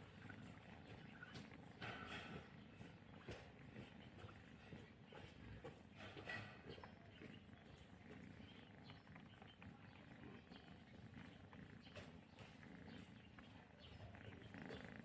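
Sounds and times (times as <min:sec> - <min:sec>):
kitten purring: 0:07.1 - 0:15.0.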